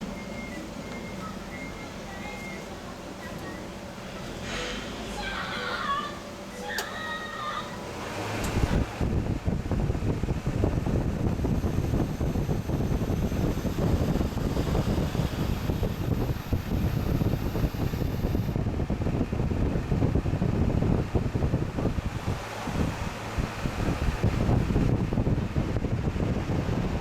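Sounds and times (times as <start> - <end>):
air conditioner fan blowing: 0.0 - 27.0
wind buffeting microphone: 8.0 - 27.0.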